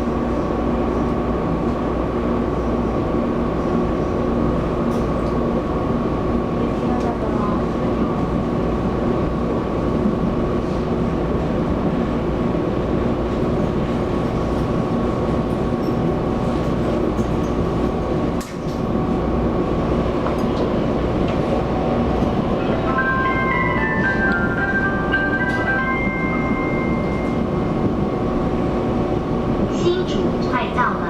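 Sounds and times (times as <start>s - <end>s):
train wheels rumbling on rail: 0.0s - 31.0s
onboard chime melody: 22.7s - 27.5s.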